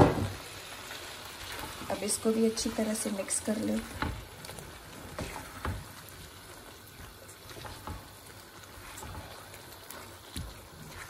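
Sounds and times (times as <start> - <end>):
frying hiss in a pan: 0.0 - 11.0
spatula knocking and scraping pan: 3.8 - 6.1, 7.0 - 11.0.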